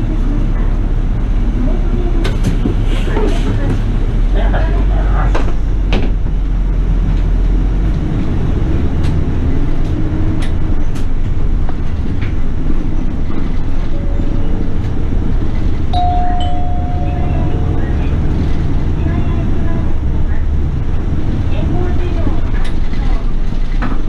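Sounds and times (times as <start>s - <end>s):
bus engine and road rumble: 0.0s - 24.0s
steady tone: 16.0s - 20.9s.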